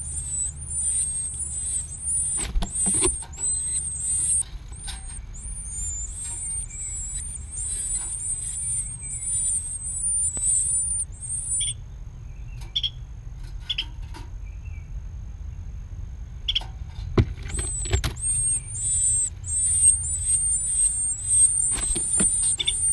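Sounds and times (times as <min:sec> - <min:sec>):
nestling birds begging calls: 0:00.0 - 0:11.8, 0:17.4 - 0:22.9
steady low rumble: 0:00.0 - 0:22.9.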